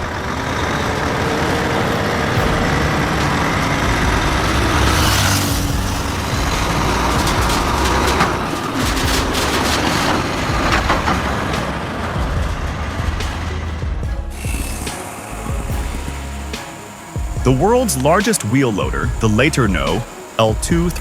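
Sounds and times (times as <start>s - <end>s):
truck engine running: 0.0s - 21.0s
air hiss: 14.3s - 21.0s.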